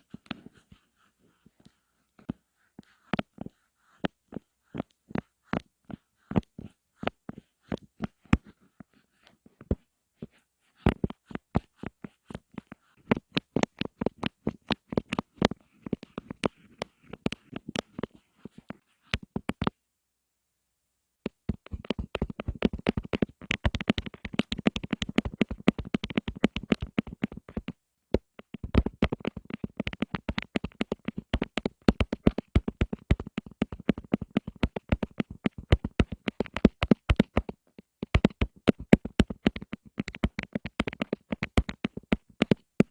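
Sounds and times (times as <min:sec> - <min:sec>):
close-up tapping: 0:09.6 - 0:19.8, 0:21.2 - 0:42.9.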